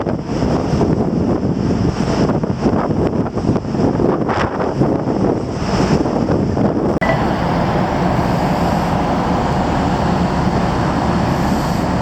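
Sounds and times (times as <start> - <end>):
wind on microphone: 0.0 - 12.0
ferry engine drone: 7.0 - 12.0
low hum: 7.0 - 12.0.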